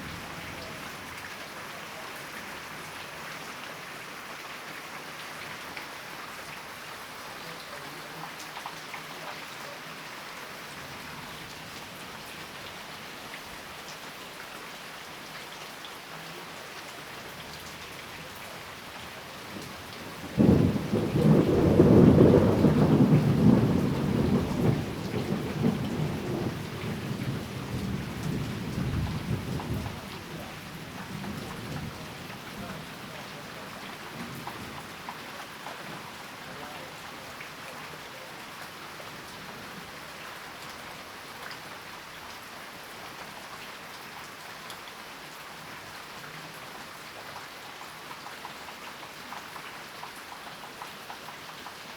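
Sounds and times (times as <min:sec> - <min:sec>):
steady rain: 0:00.0 - 0:51.9
thunderclap rumbling: 0:20.4 - 0:30.0.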